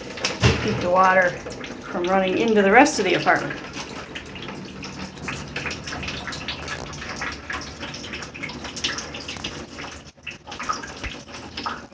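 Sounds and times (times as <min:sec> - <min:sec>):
rainwater dripping into bucket: 0:00.0 - 0:11.9.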